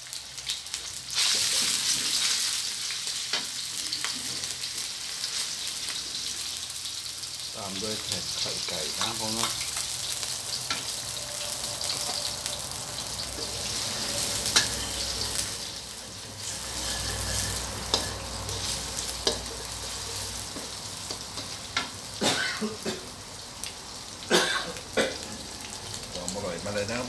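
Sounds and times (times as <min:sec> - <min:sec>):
egg and pork sizzling in a wok: 0:00.0 - 0:27.0
spatula scraping a metal wok: 0:13.0 - 0:21.9.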